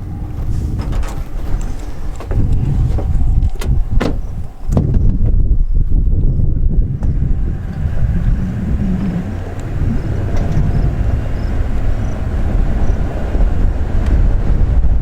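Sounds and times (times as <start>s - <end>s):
truck engine rumbling: 0.0s - 15.0s
tyres on dirt track: 0.0s - 15.0s.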